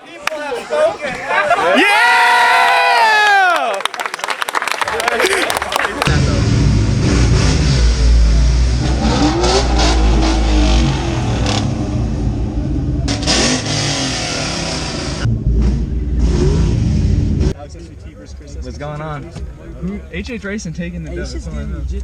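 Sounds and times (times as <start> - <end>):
car engine revving: 6.0 - 22.0.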